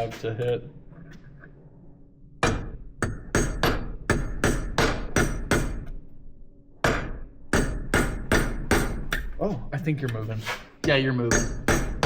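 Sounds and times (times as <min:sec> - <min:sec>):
hammer striking chisel on metal: 0:02.4 - 0:06.0, 0:06.8 - 0:09.4, 0:10.8 - 0:12.0.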